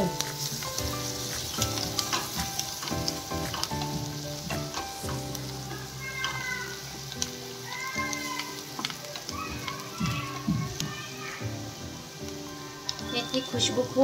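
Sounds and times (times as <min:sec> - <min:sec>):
background music: 0:00.0 - 0:14.0
onions sizzling in oil: 0:00.0 - 0:14.0.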